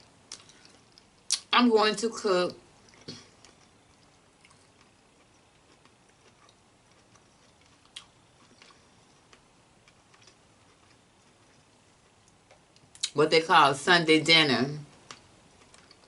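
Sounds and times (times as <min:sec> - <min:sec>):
soft eating clicks: 0:00.3 - 0:01.5, 0:02.8 - 0:13.2, 0:14.9 - 0:16.0.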